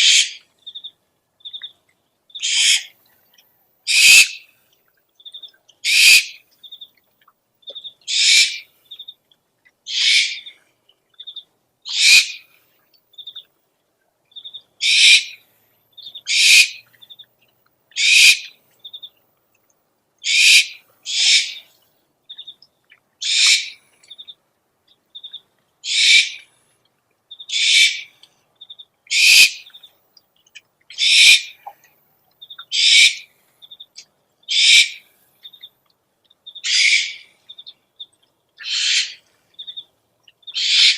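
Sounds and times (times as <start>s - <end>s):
owl raspy screeches: 0.0s - 0.4s, 2.4s - 2.9s, 3.9s - 4.4s, 5.8s - 6.4s, 8.1s - 8.6s, 9.9s - 10.5s, 11.9s - 12.4s, 14.8s - 15.4s, 16.3s - 16.8s, 18.0s - 18.5s, 20.2s - 21.7s, 23.2s - 23.8s, 25.8s - 26.4s, 27.5s - 28.1s, 29.1s - 29.7s, 30.9s - 31.6s, 32.7s - 33.3s, 34.5s - 35.0s, 36.6s - 37.3s, 38.6s - 39.2s, 40.5s - 40.9s.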